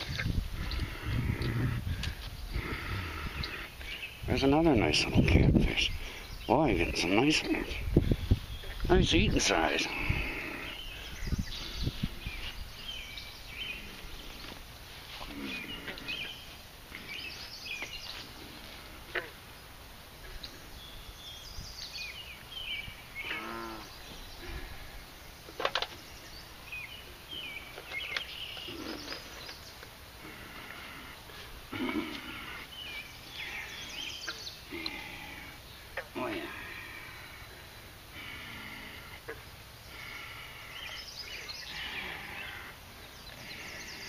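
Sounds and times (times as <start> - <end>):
wild birds chirping: 0.0 - 44.0
low pitched bird call: 20.3 - 24.9.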